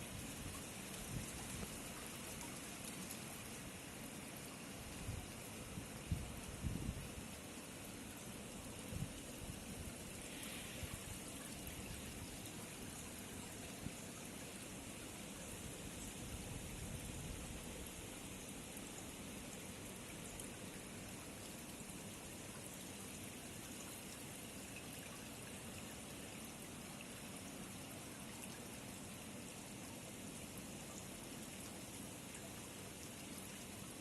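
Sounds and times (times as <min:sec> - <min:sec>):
hiss of water: 0:08.7 - 0:18.7.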